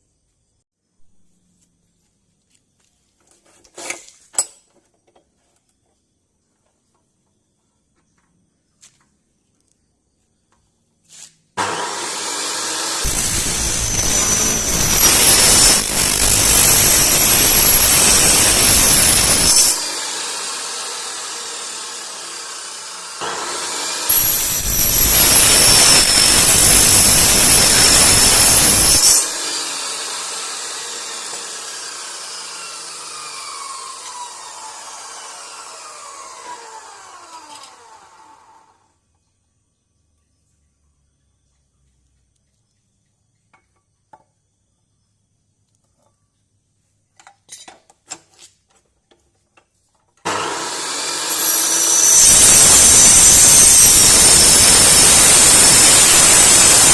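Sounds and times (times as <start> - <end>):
motor winding down whine: 11.6 - 38.8, 50.3 - 56.9
saw motor running: 11.6 - 38.8, 50.3 - 56.9
saw screeching through metal: 11.6 - 38.8, 50.3 - 56.9.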